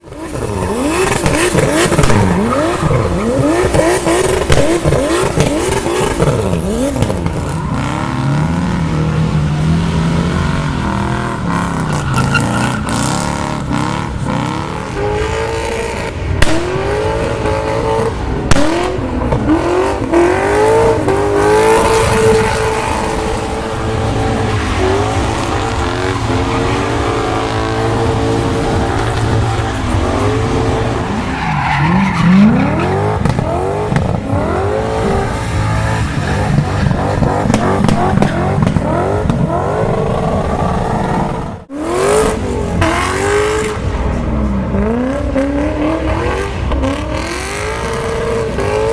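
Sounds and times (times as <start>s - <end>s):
car engines revving: 0.0s - 48.9s
tyre squeal: 11.3s - 13.6s, 20.8s - 34.1s
sharp cracks: 18.5s - 19.6s.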